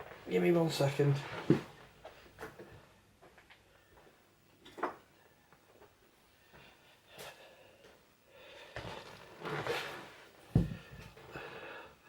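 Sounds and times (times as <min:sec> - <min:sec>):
soft rustles and shuffles: 0:00.0 - 0:04.2, 0:08.7 - 0:11.5.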